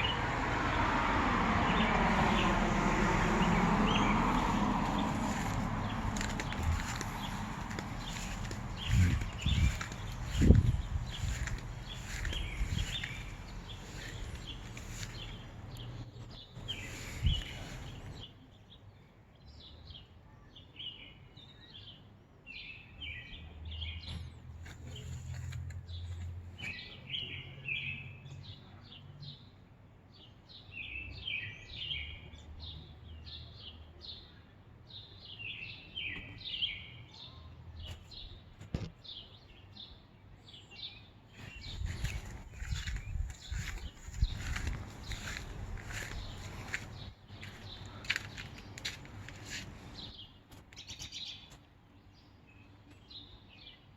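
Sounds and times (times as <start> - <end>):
small bird chirping: 5.3 - 18.3.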